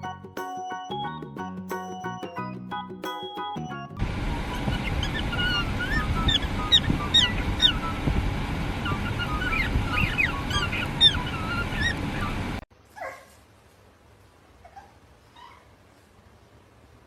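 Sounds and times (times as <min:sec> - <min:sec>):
loud noisy background: 0:04.0 - 0:12.6
squeaky animal cries: 0:04.7 - 0:07.8, 0:08.8 - 0:12.4.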